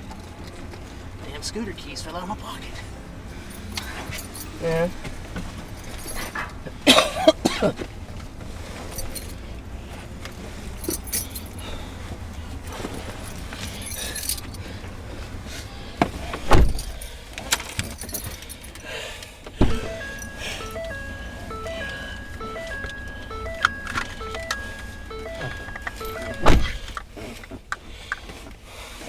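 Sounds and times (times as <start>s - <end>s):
keys jangling: 3.5s - 4.8s, 5.6s - 6.4s, 8.9s - 9.4s, 10.8s - 11.7s, 12.8s - 14.6s, 16.5s - 19.0s, 19.9s - 26.8s.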